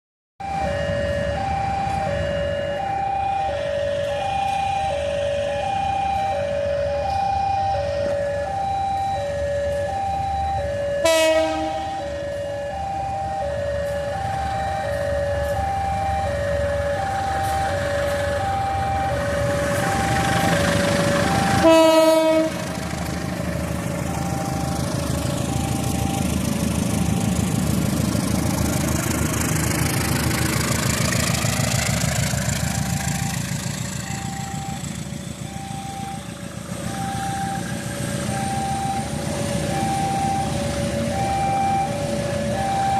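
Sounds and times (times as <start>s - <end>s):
level crossing alarm: 0.4s - 28.6s, 30.8s - 42.9s
train rumbling past: 0.4s - 42.9s
train horn blasts: 11.0s - 12.0s, 21.6s - 22.7s.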